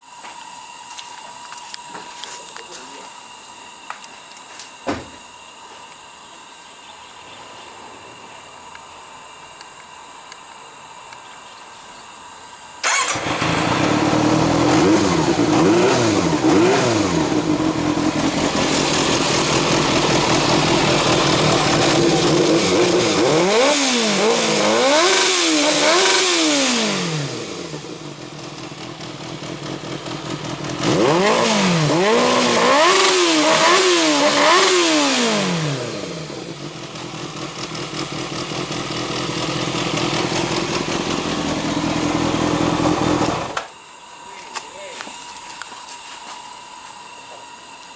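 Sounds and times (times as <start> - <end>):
motorcycle engine idling and revving: 12.1 - 44.2.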